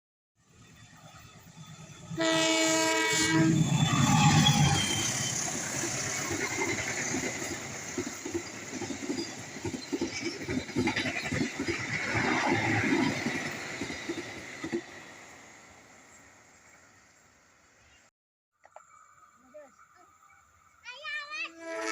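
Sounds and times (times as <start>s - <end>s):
train rolling rumble: 0.4s - 17.2s
train horn: 2.1s - 5.0s, 21.4s - 21.9s.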